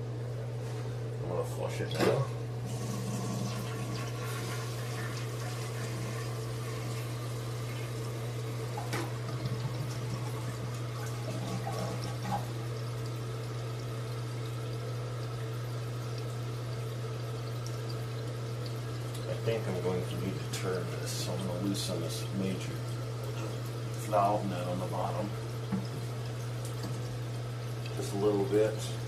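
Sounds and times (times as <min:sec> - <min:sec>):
toilet flushing and refilling: 0:01.3 - 0:29.0.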